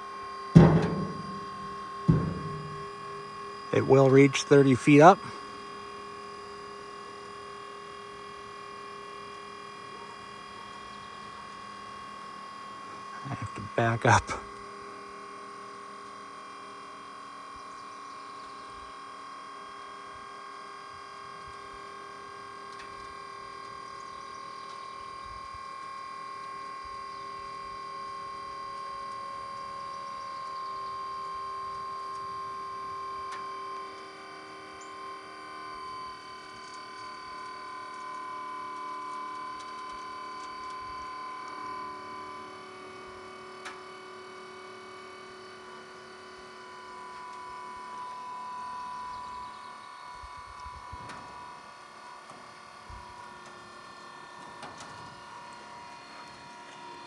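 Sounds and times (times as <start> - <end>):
hydraulic pump motor whining: 0.6 - 4.4.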